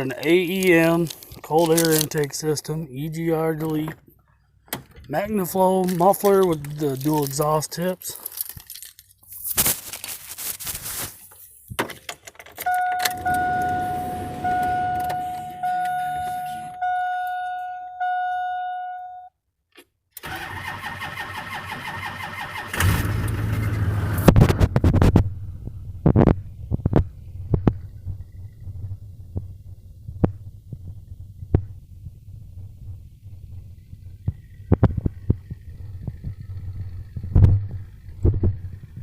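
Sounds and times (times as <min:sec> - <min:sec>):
cab clatter: 0:03.5 - 0:08.9
diesel engine starting and idling: 0:12.6 - 0:18.9, 0:20.2 - 0:39.0
truck warning chime dinging: 0:12.6 - 0:19.3.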